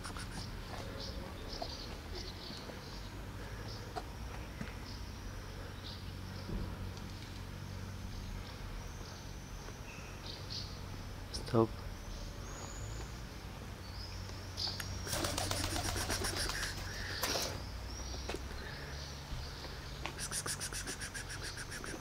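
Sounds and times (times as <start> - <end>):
rapid bird chattering: 0.0 - 0.7, 14.8 - 17.4, 20.1 - 22.0
small birds chirping: 0.0 - 22.0.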